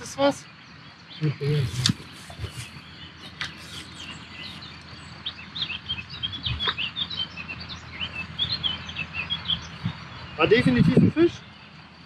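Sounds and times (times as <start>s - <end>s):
outdoor background hiss: 0.0s - 12.0s
small birds chirping: 0.0s - 12.0s.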